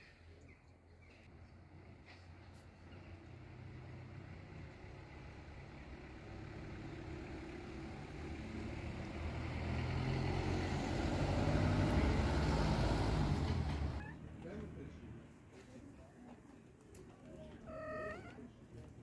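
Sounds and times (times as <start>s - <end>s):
vehicle engine hum approaching: 1.3s - 15.3s.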